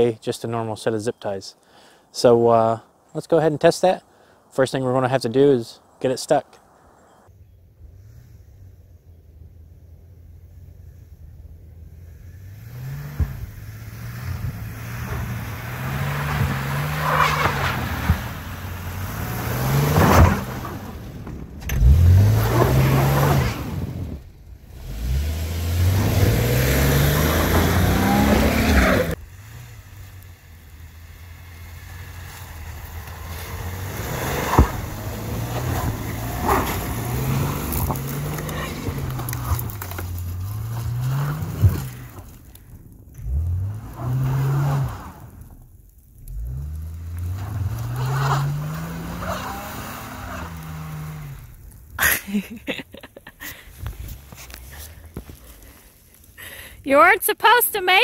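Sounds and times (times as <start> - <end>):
car engine revving: 7.8 - 52.0
tyres churning snow: 10.5 - 58.0.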